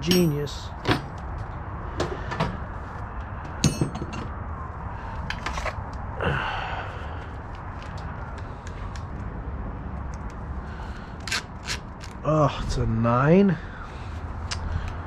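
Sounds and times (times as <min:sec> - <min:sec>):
metal clinks from hand tools: 0:00.0 - 0:00.5
low background hum: 0:00.0 - 0:15.0.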